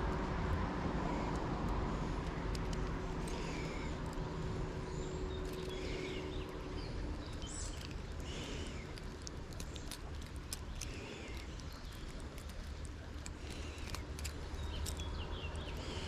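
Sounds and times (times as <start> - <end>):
faint hum: 0.0 - 16.0
steady low rumble: 0.0 - 16.0.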